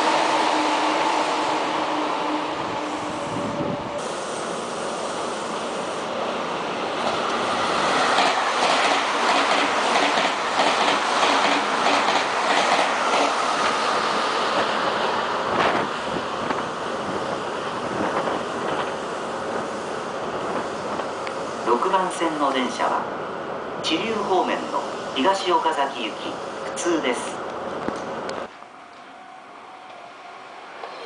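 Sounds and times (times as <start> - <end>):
train wheels clattering on rails: 7.0 - 13.8.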